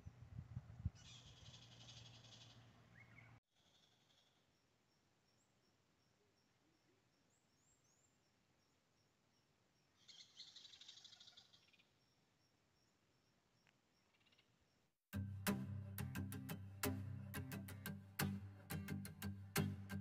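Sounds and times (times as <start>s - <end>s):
music: 15.1s - 20.0s.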